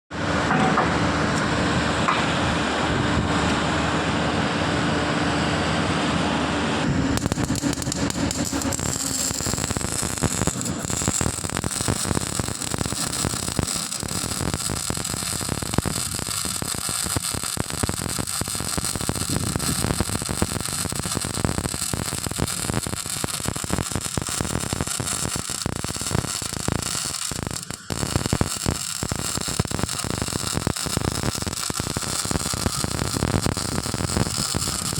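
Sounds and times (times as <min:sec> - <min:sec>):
machine hum: 0:00.2 - 0:34.9
welding arc crackling: 0:07.2 - 0:34.9.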